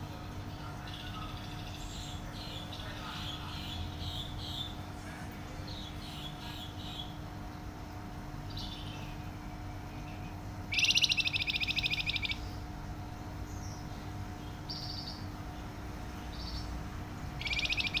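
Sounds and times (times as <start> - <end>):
faint steady hum: 0.0 - 18.0
songbird rapid high trills: 10.7 - 12.6, 17.4 - 18.0.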